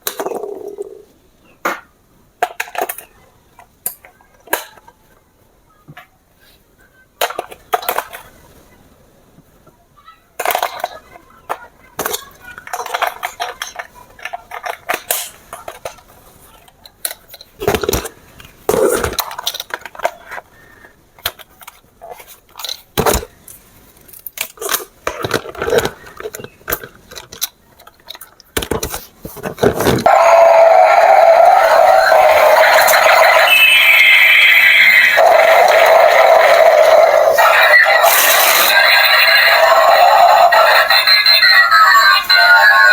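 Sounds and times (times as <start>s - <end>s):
plastic toy parts rattling: 24.1s - 30.0s.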